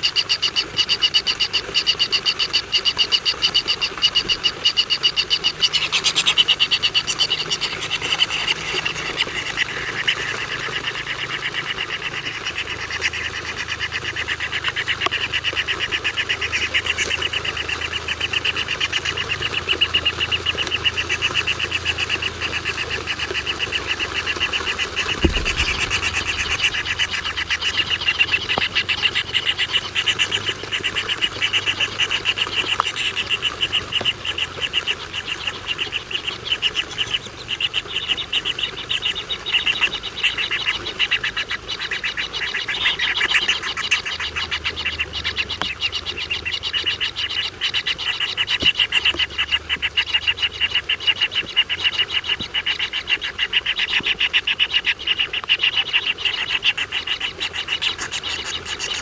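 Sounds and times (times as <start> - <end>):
animal calling in rapid pulses: 0.0 - 59.0
low thump: 25.0 - 28.0.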